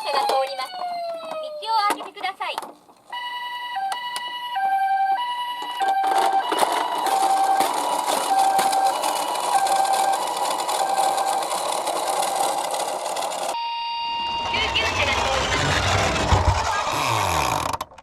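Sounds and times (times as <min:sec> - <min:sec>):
two-tone ambulance siren: 0:00.0 - 0:01.9, 0:03.1 - 0:16.3
toy cars rattling down a slope: 0:05.7 - 0:13.6, 0:14.6 - 0:18.0.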